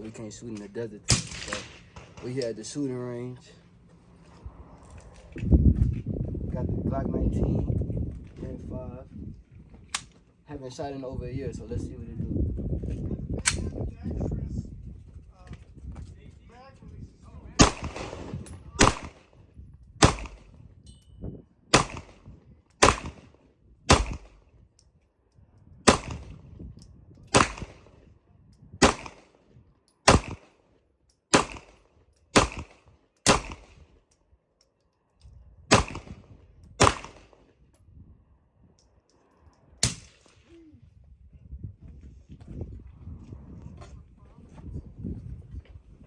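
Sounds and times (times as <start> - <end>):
gunshots with short echo: 17.6 - 19.3, 20.0 - 20.6, 21.7 - 23.3, 23.9 - 24.4, 25.9 - 26.4, 27.3 - 27.9, 28.8 - 29.3, 30.1 - 30.6, 31.3 - 31.8, 32.4 - 33.8, 35.7 - 36.2, 36.8 - 37.4.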